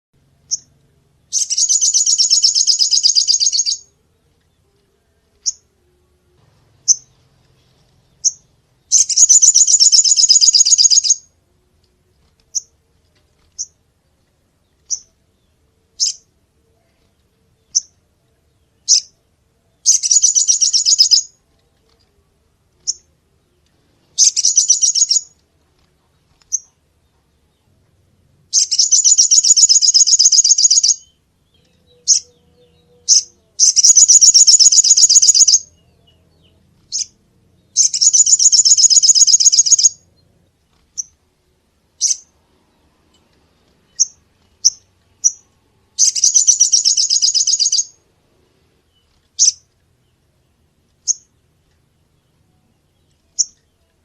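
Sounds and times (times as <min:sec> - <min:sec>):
high-pitched bird trills: 0:01.3 - 0:03.9, 0:08.2 - 0:11.3, 0:19.9 - 0:21.3, 0:24.2 - 0:25.4, 0:28.6 - 0:31.1, 0:31.8 - 0:36.1, 0:37.8 - 0:40.0, 0:46.0 - 0:48.0
sharp bird chirps: 0:01.3 - 0:03.9, 0:08.1 - 0:11.3, 0:16.0 - 0:16.3, 0:18.8 - 0:19.2, 0:19.8 - 0:21.4, 0:24.1 - 0:25.4, 0:28.5 - 0:40.0, 0:42.0 - 0:42.4, 0:43.9 - 0:48.0, 0:48.9 - 0:49.7, 0:53.1 - 0:53.8.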